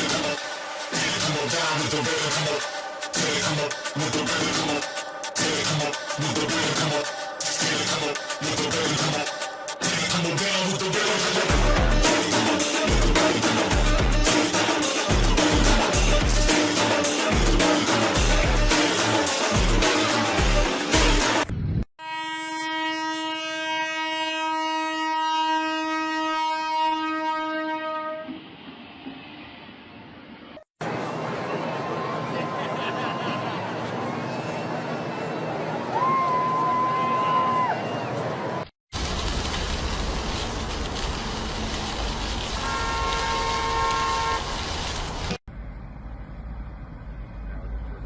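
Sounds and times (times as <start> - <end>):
horn long steady note: 22.0 - 28.4, 42.6 - 44.6.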